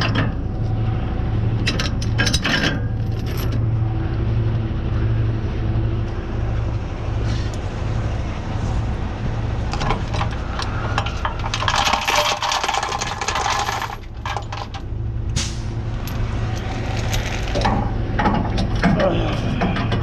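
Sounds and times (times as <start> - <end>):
metal tools clinking and rattling: 10.0 - 14.8.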